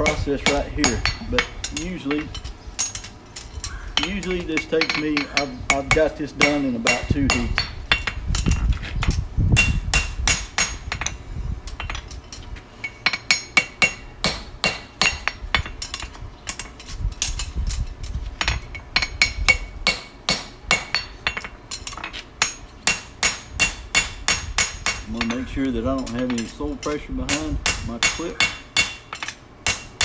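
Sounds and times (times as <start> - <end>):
hammer ringing on anvil: 0.0 - 3.1, 4.0 - 8.2, 13.1 - 15.4, 19.0 - 21.6, 22.4 - 30.0.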